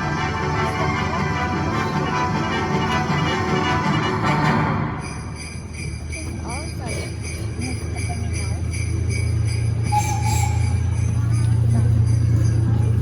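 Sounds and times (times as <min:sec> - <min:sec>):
miniature train hum: 0:00.0 - 0:13.0
small bells shaking: 0:05.0 - 0:13.0.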